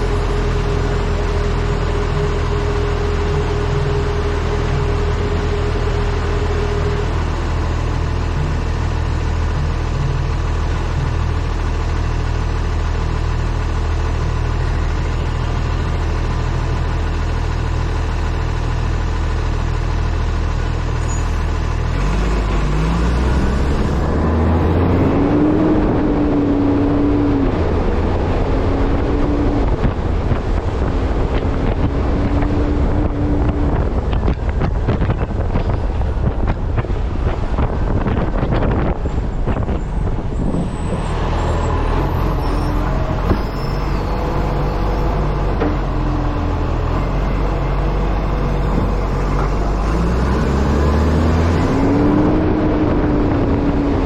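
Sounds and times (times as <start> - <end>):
diesel truck engine: 0.0 - 54.0
road noise: 0.0 - 54.0
wind noise: 22.1 - 54.0.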